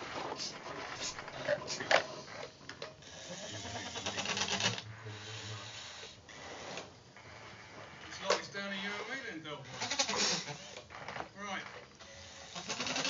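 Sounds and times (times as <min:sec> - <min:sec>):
small electric motors whirring: 0:03.0 - 0:06.9.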